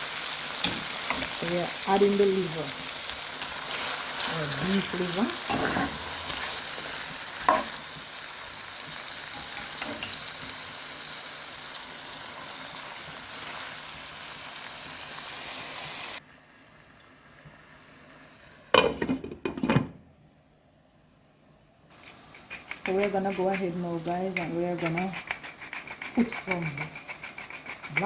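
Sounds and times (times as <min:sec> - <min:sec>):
food sizzling in a pot: 0:00.0 - 0:19.1.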